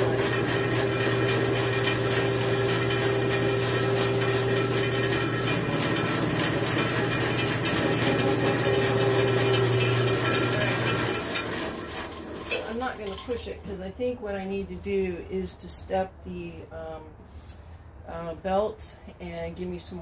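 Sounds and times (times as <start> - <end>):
bandsaw running: 0.0 - 13.4.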